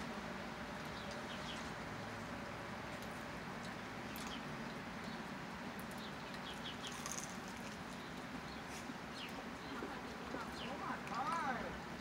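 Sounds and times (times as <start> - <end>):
bird chirping: 0.9 - 1.7, 5.9 - 7.3, 7.9 - 11.0.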